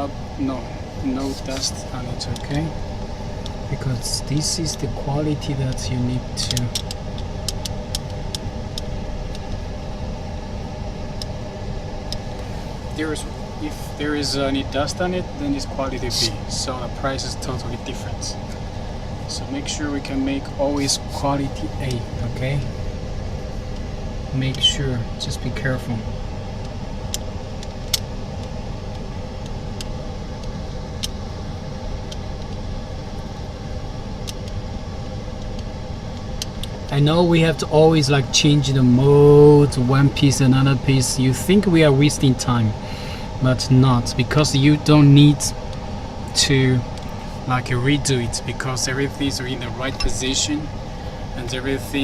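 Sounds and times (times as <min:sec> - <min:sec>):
workshop equipment droning: 0:00.0 - 0:52.0
light clicks of handled parts: 0:05.7 - 0:09.6.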